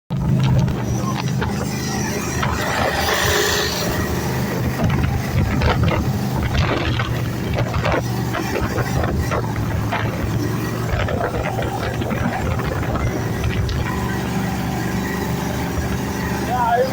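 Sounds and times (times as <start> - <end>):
boat engine drone: 0.1 - 16.9
rushing water noise: 0.1 - 16.9.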